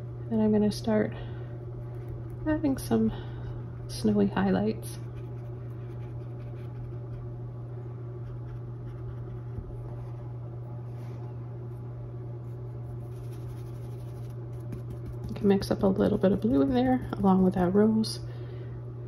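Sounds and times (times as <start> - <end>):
low electrical hum: 0.0 - 19.0
paintbrush scratching on canvas: 5.0 - 7.2, 12.8 - 15.4.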